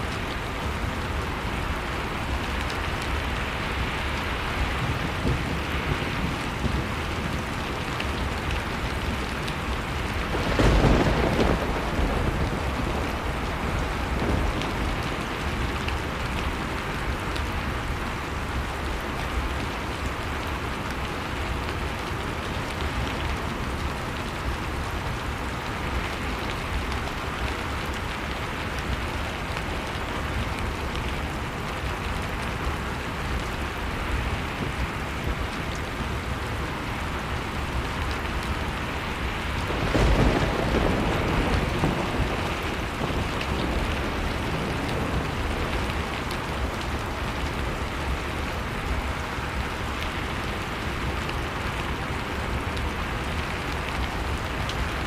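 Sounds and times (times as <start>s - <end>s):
wood fire crackling: 11.1s - 55.0s.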